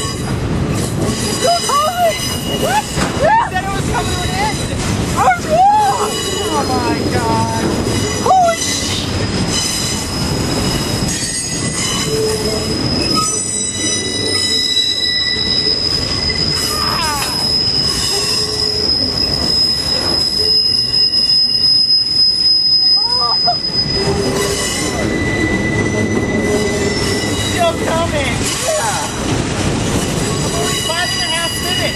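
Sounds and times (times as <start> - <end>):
train rolling rumble: 0.0 - 31.9
freight car wheels squealing: 7.8 - 29.2.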